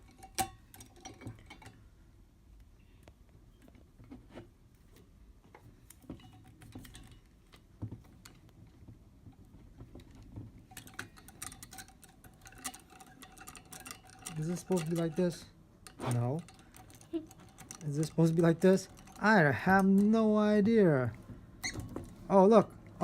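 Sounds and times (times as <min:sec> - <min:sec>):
corkscrew clicking and rattling: 0:10.0 - 0:20.2.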